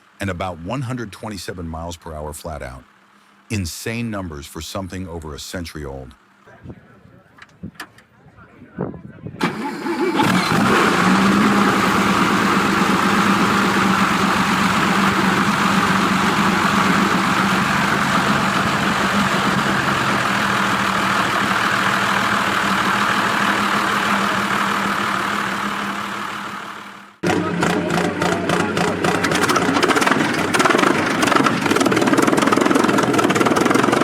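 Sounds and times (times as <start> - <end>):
car engine running: 10.0 - 34.0.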